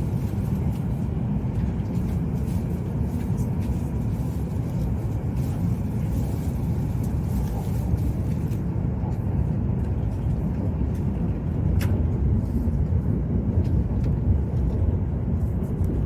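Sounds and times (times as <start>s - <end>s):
train interior low rumble: 0.0s - 16.0s.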